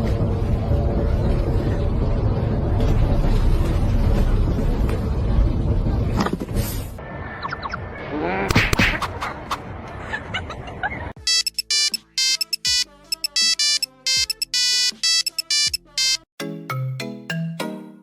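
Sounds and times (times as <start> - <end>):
electronic ringtone melody: 11.2 - 16.3.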